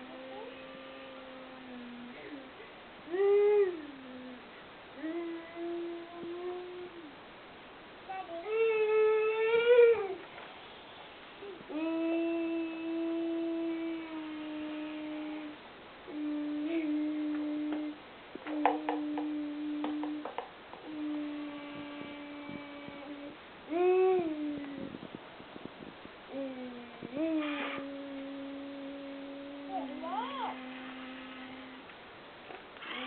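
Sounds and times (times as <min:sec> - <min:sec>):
person humming long notes: 0:00.0 - 0:07.1, 0:11.5 - 0:25.2, 0:26.3 - 0:31.9.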